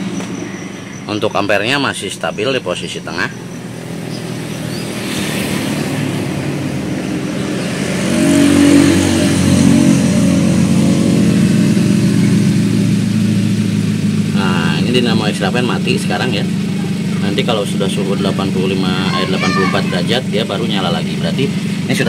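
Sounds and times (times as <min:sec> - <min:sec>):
car engine idling: 0:00.0 - 0:22.0
radiator fan running: 0:09.3 - 0:22.0.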